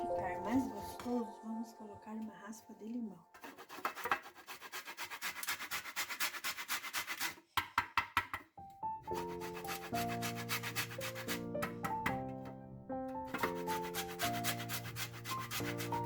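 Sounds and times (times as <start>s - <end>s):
background music with sustained chords: 0.0s - 3.2s
lemon rasping on metal grater: 3.4s - 7.4s, 9.1s - 11.6s, 13.3s - 16.0s.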